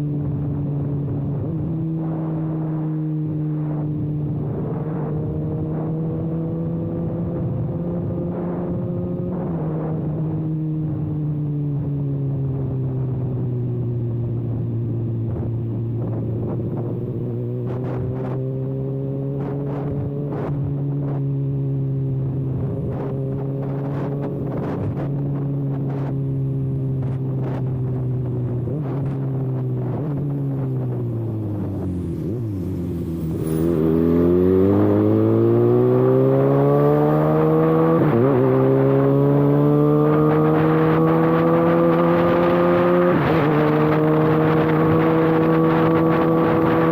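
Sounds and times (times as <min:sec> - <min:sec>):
motorcycle engine revving: 0:16.0 - 0:46.9.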